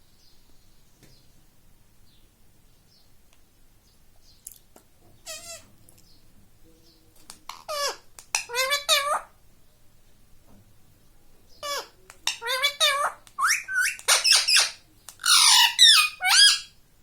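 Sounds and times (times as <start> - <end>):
parakeet screeching: 5.3 - 5.6, 7.7 - 9.3, 11.6 - 16.7.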